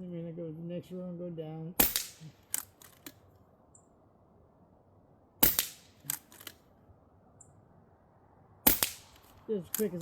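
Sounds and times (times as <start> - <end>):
air rifle shot crack: 5.4 - 6.1, 8.6 - 9.2.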